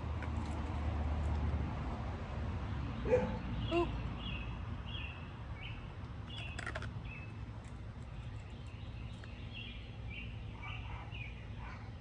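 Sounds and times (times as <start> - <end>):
small birds chirping: 2.7 - 12.0.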